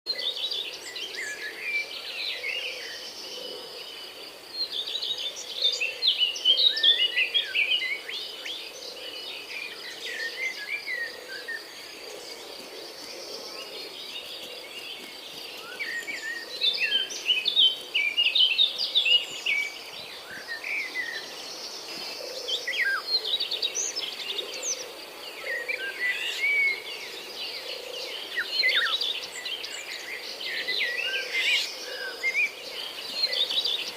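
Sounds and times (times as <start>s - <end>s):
birds chirping and warbling: 0.1s - 33.9s.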